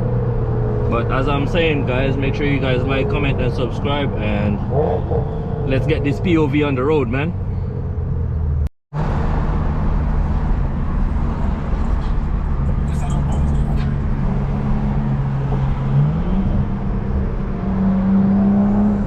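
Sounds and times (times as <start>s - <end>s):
car engine running: 9.8s - 15.9s.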